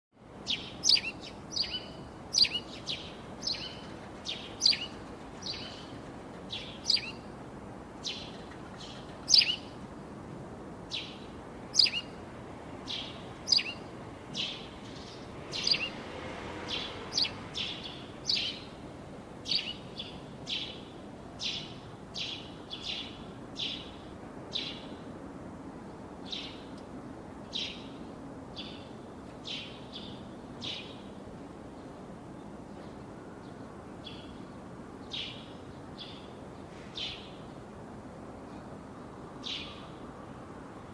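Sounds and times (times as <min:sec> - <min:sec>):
bird chirping: 0:00.4 - 0:07.3, 0:08.0 - 0:09.8, 0:10.9 - 0:12.2, 0:12.9 - 0:16.0, 0:16.7 - 0:18.8, 0:19.4 - 0:24.9.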